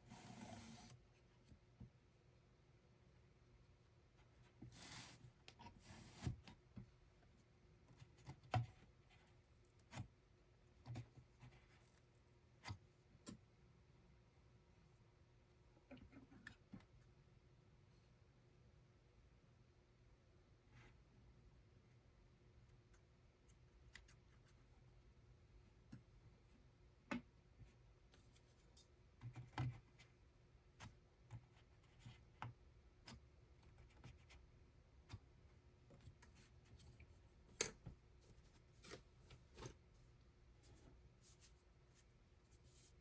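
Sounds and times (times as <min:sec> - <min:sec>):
small clicks and snips: 0:22.7 - 0:24.6.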